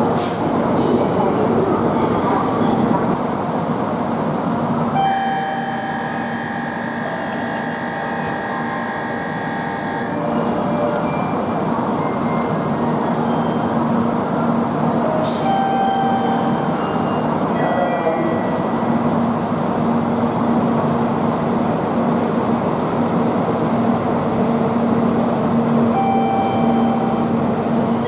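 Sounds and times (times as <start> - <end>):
train rumble and hiss: 0.0 - 6.0, 7.0 - 28.0
steady high-pitched multi-tone: 5.0 - 10.2.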